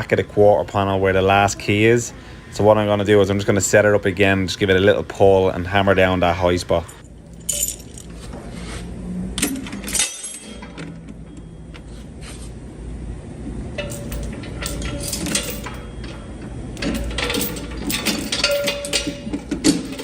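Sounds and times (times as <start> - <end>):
metal equipment clinking and rattling: 7.0 - 8.4, 9.4 - 11.1, 13.8 - 20.0.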